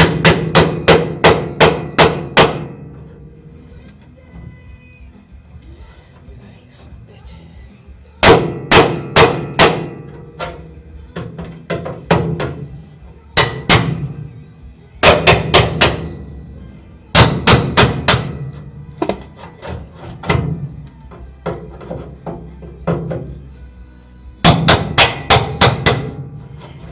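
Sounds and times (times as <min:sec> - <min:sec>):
hammer blows on sheet metal: 0:00.0 - 0:03.0, 0:08.2 - 0:10.6, 0:15.0 - 0:16.4, 0:17.1 - 0:19.2, 0:24.4 - 0:26.7.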